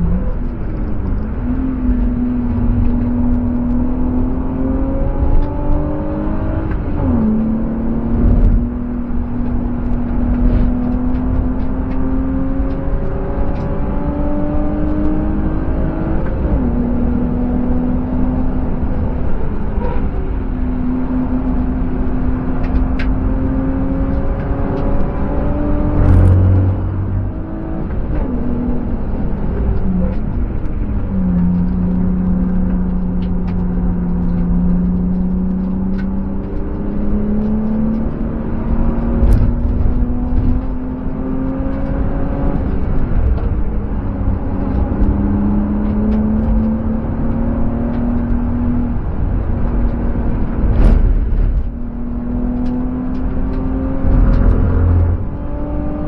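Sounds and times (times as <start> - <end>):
car engine revving and shifting: 0.0 - 56.0
low thump: 50.6 - 51.8.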